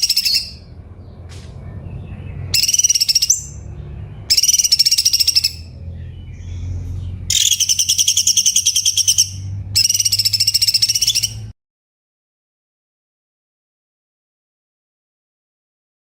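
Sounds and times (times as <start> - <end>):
bird chattering trills: 0.0 - 0.7, 2.5 - 11.5.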